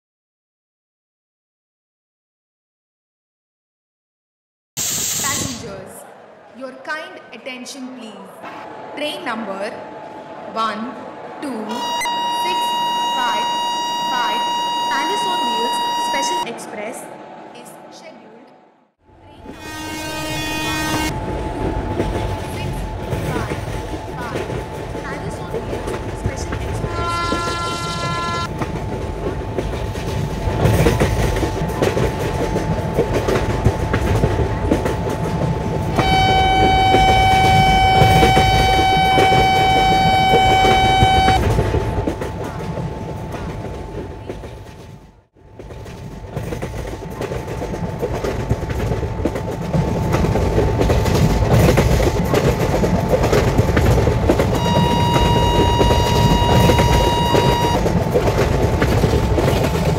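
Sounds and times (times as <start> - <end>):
train rumble and wheel clatter: 8.7 - 18.4, 19.1 - 59.9
locomotive horn blasts: 11.7 - 16.6, 19.3 - 21.2, 26.6 - 28.5, 35.9 - 42.0, 54.4 - 58.0.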